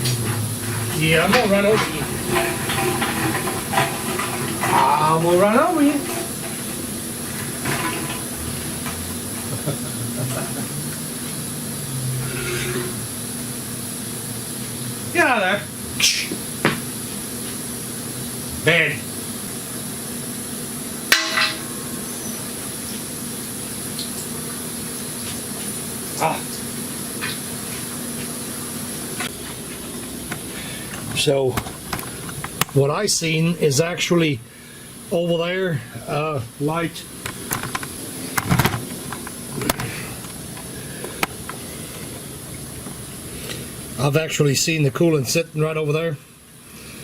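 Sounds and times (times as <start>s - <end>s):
high-pitched whine: 8.3s - 16.4s
steady low hum: 25.8s - 47.0s.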